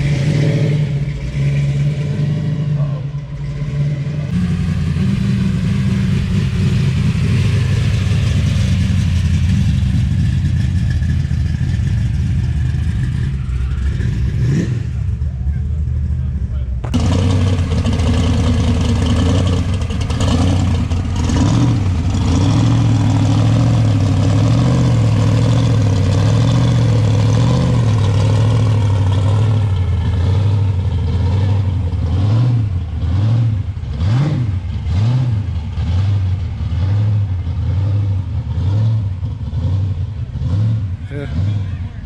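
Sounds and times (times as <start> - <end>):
car engine lumpy idle: 4.2 - 32.1
engine revving blips: 12.4 - 15.3, 16.8 - 41.8.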